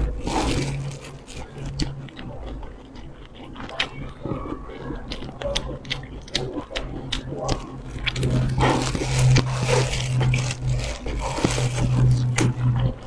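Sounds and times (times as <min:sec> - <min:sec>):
crunching crispy fried food: 0:00.0 - 0:13.0
steady low hum: 0:00.0 - 0:13.0.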